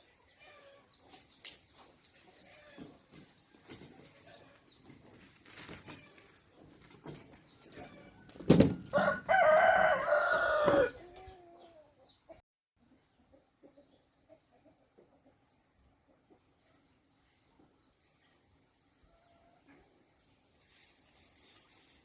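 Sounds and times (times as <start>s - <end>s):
rooster crowing: 8.9s - 11.1s.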